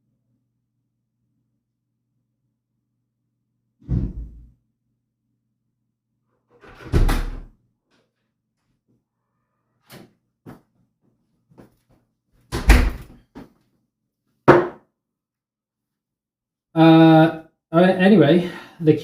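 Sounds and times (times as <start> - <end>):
door thudding shut: 6.7 - 7.5, 12.5 - 13.1.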